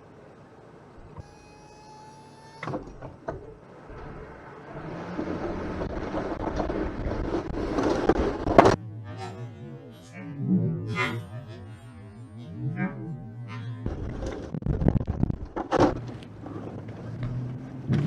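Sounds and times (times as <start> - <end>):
high steady tone: 1.0 - 2.7, 8.7 - 14.8
vehicle engine running: 2.8 - 18.0.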